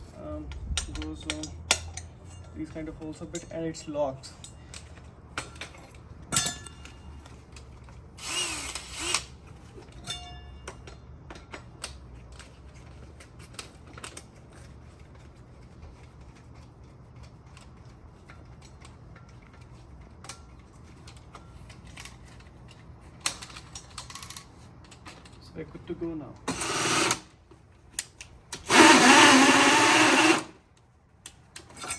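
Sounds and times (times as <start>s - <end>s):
metal clicks and clinks: 0.5s - 3.6s.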